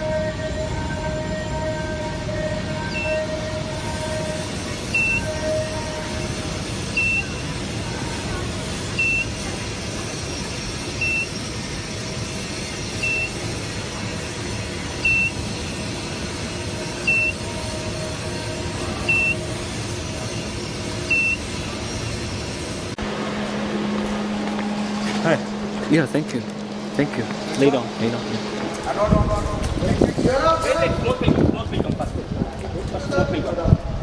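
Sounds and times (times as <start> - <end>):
machinery noise: 0.0 - 34.0
high electronic beep: 4.9 - 5.4, 6.9 - 7.4, 9.0 - 9.4, 17.0 - 17.5, 19.1 - 19.4, 21.1 - 21.5, 23.0 - 30.8
low hum: 22.9 - 32.4.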